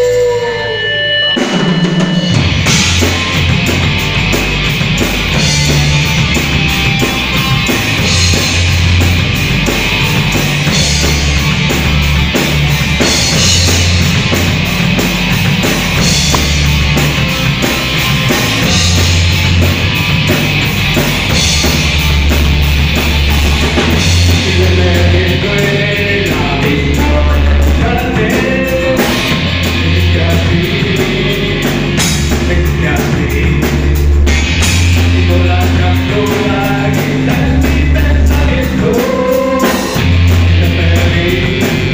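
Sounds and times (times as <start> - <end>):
person singing: 0.0 - 3.5, 24.1 - 33.9, 35.0 - 41.9
rock band playing: 0.0 - 41.9.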